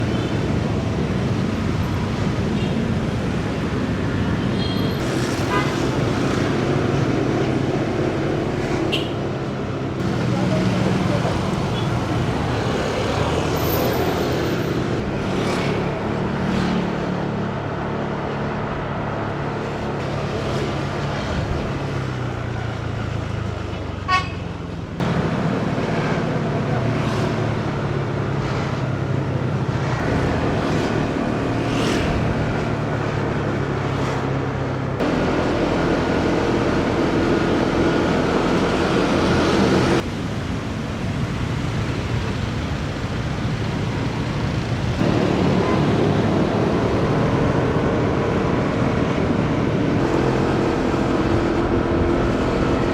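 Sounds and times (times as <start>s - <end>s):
road and traffic noise: 0.0s - 52.9s.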